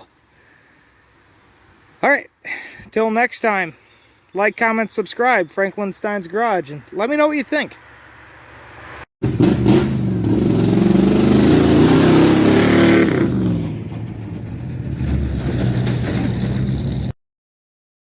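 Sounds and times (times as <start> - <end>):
vehicle engine revving: 8.7 - 17.1.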